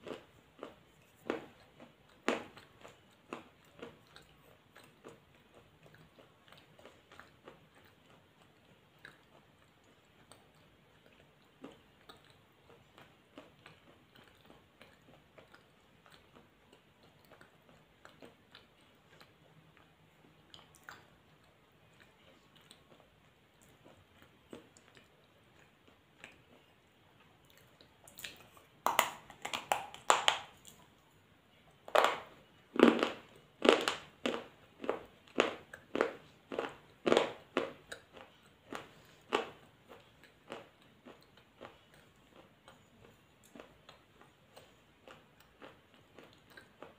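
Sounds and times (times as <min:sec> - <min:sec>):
person crunching food: 0:00.0 - 0:08.2, 0:27.5 - 0:30.9, 0:31.9 - 0:46.9.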